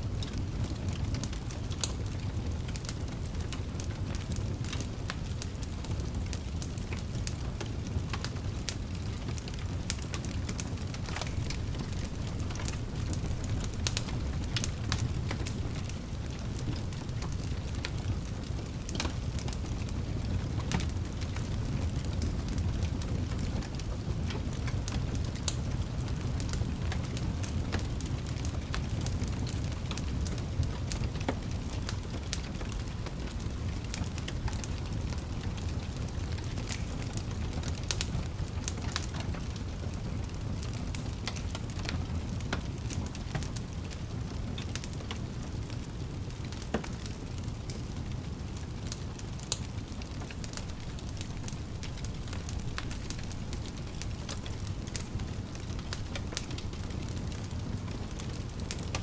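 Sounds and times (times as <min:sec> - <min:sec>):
fireplace fire crackling: 0:00.0 - 0:59.0.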